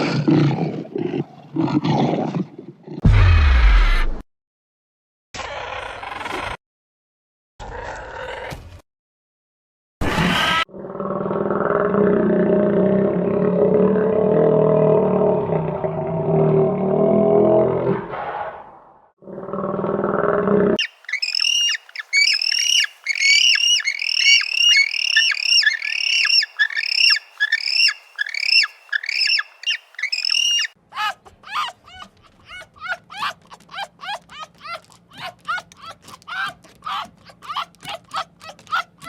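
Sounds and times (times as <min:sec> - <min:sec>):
bird squawking and chirping: 0:20.8 - 0:30.8.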